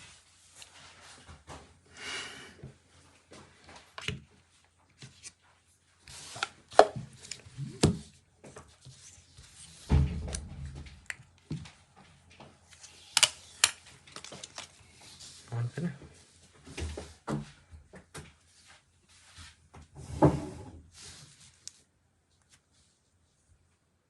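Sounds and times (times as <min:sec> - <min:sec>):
packaging rustling: 0:12.8 - 0:15.1.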